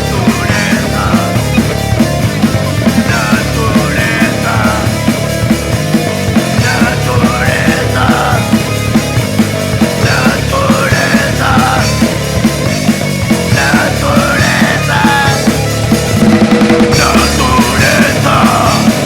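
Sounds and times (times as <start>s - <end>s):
punk rock band playing live: 0.0s - 19.0s.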